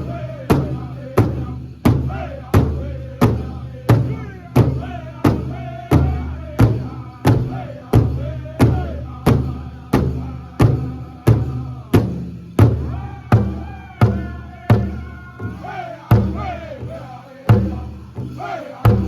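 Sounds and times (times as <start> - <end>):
singers' high wavering voices: 0.0 - 12.0, 12.8 - 19.0
large drum steady beat: 0.0 - 19.0.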